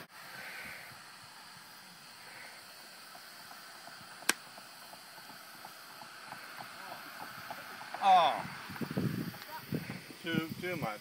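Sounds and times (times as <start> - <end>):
faint steady hiss: 0.0 - 11.0
golf club striking ball: 4.2 - 4.4.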